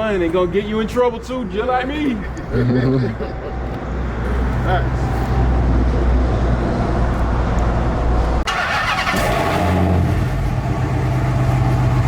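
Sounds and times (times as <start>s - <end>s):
rough engine and air noise: 0.0s - 12.0s
car engine droning: 3.9s - 12.0s.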